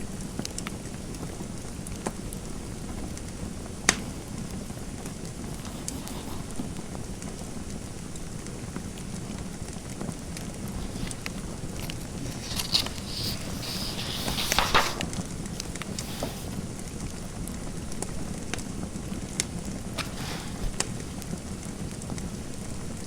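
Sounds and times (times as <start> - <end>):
wood fire crackling: 0.2 - 23.0
scratchy rustling: 3.9 - 7.0, 10.6 - 16.7, 19.9 - 21.4.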